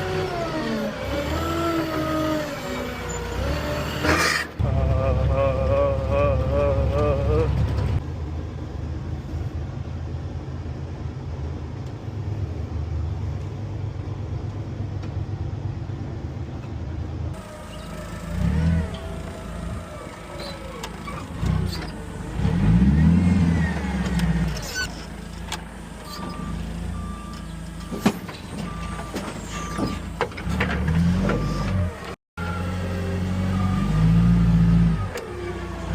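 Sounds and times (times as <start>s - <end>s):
engine revving: 0.0s - 8.0s, 17.4s - 27.3s, 29.7s - 35.9s
heavy vehicle engine humming: 0.0s - 35.9s.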